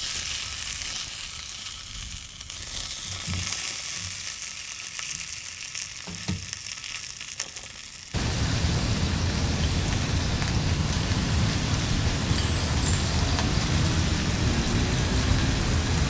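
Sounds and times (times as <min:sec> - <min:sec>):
food sizzling in a pan: 0:00.0 - 0:16.0
heavy rain: 0:08.2 - 0:16.0.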